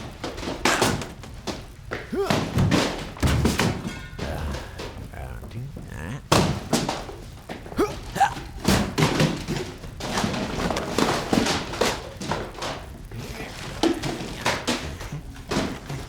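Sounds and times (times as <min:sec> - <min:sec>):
thumps and knocks: 0:00.3 - 0:07.0
short voice sounds: 0:02.1 - 0:06.5, 0:07.8 - 0:08.6.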